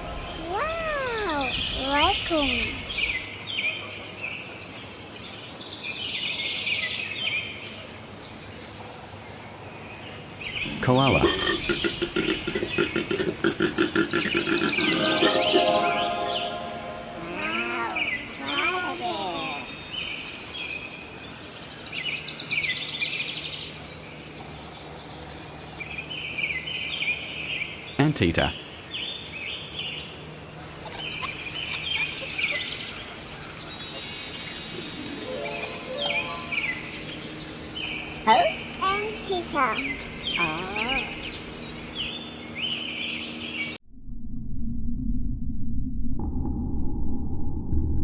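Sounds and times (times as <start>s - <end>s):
birds chirping in trills: 0.0s - 43.8s
faint background hum: 0.0s - 43.8s
raccoon chittering: 10.7s - 14.8s, 30.6s - 33.3s.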